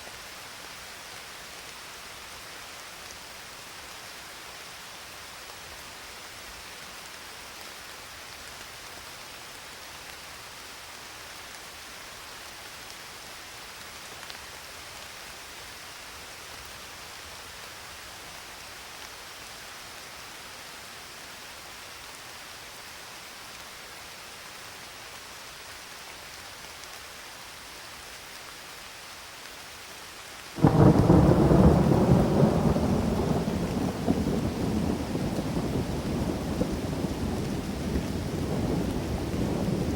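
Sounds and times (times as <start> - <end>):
steady rain hiss: 0.0 - 39.9
loud thunder rumble: 30.6 - 39.9.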